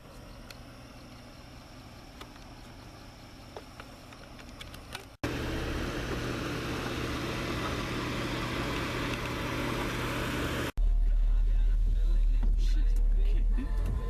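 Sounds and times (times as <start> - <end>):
car engine running steadily: 5.2 - 14.0.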